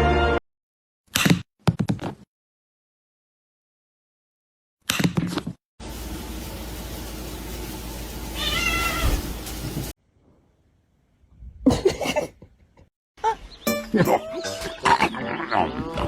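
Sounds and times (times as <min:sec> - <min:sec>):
background hiss: 0:05.8 - 0:09.9
cat meowing: 0:08.4 - 0:09.3.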